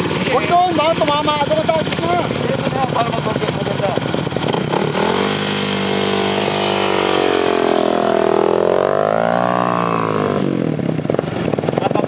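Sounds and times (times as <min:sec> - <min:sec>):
dirt bike engine under throttle: 0:00.0 - 0:12.0.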